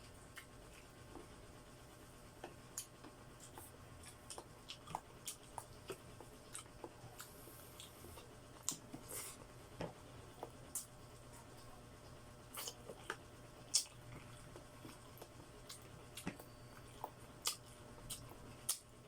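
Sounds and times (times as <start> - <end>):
chewing and sucking mouth sounds: 2.4 - 11.7, 12.5 - 18.9.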